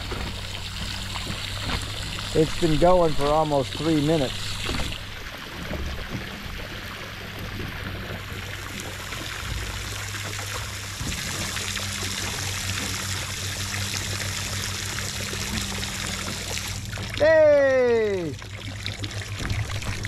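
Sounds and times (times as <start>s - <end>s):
low hum: 0.0s - 20.0s
heavy rain pouring: 17.2s - 18.4s.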